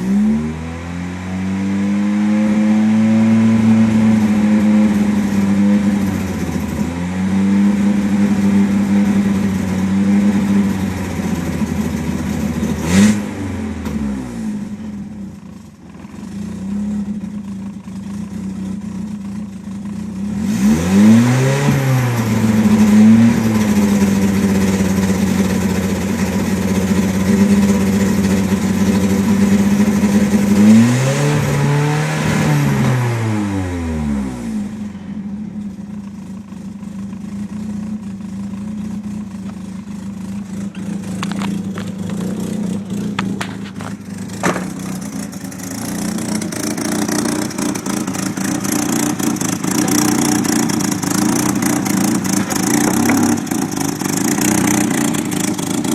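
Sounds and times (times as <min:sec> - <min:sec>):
car engine revving and idling rough: 0:00.0 - 0:55.9.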